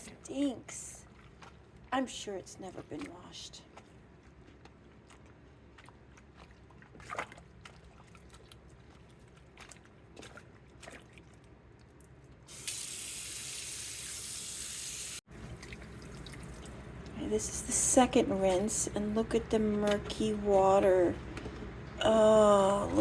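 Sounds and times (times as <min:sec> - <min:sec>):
water tap running: 0:12.5 - 0:15.2.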